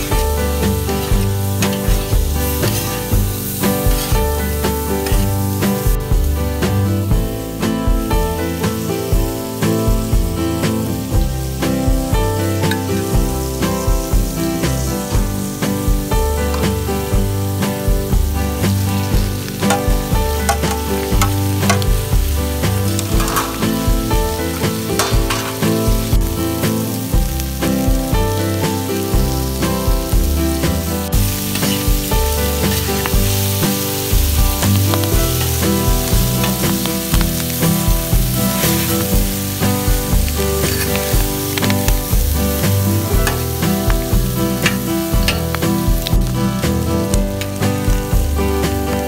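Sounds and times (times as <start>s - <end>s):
background music with bass: 0.0s - 49.0s
greens sizzling on a hot plate: 0.0s - 49.0s
spatula scraping steel: 0.6s - 5.3s, 22.9s - 23.8s, 31.4s - 32.0s, 38.4s - 45.6s.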